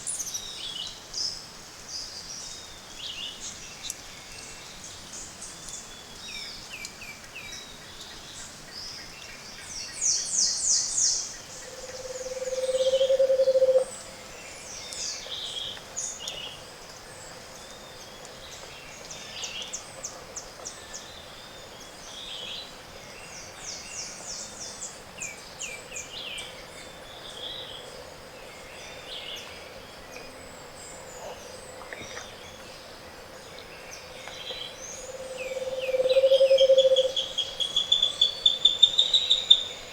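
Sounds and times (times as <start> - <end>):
low hollow bird hooting: 11.7 - 13.9, 35.0 - 39.6.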